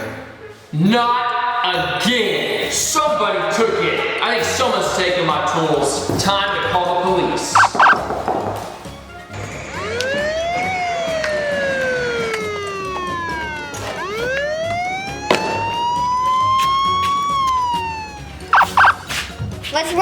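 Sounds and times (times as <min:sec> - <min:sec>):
police siren wailing: 0:07.6 - 0:08.1, 0:09.4 - 0:19.1.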